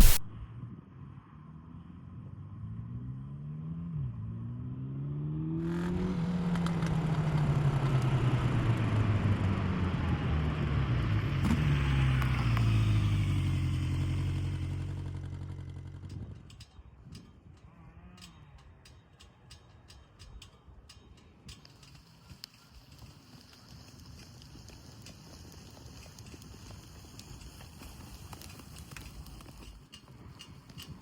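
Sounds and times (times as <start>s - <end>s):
motorcycle engine accelerating: 3.0s - 16.6s.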